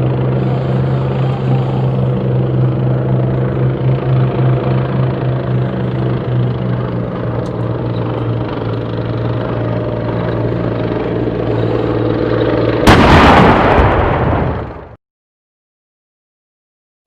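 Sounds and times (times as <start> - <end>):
tank engine running: 0.0 - 15.0
tank gun firing blast: 12.8 - 15.0.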